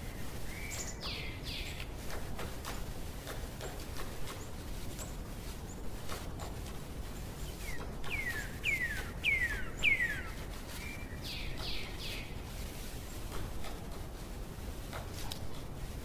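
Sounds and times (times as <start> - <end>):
songbird singing: 0.0 - 2.5, 3.6 - 13.3.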